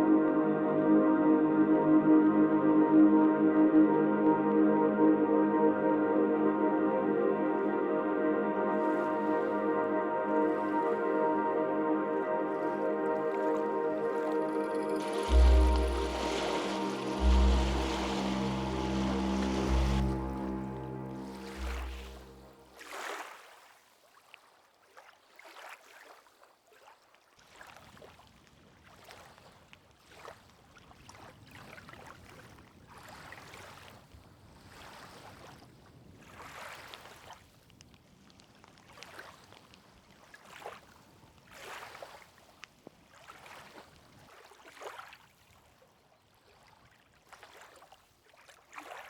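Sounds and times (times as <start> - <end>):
water lapping and splashing: 12.6 - 28.2, 34.6 - 49.0.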